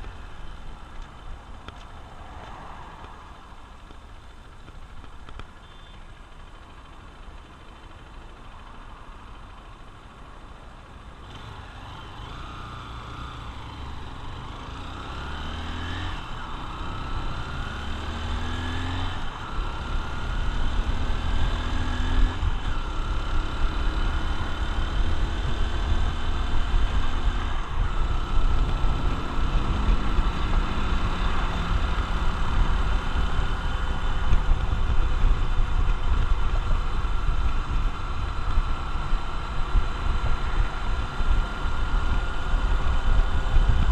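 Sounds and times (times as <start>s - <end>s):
motorcycle engine accelerating: 11.0s - 43.9s
wind rumble on microphone: 24.4s - 43.9s.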